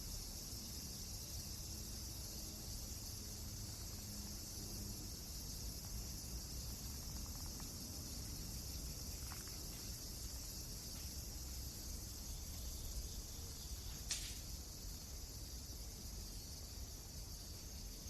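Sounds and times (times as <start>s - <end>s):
fire crackling pops: 13.9s - 14.5s.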